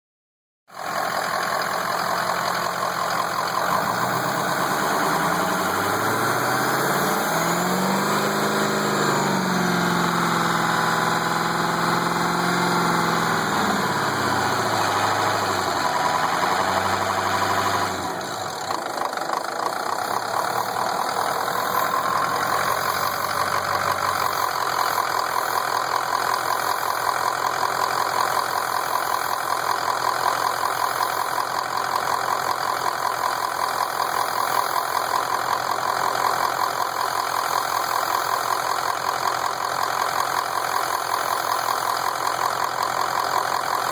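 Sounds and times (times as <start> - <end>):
truck engine revving: 0.8 - 25.6.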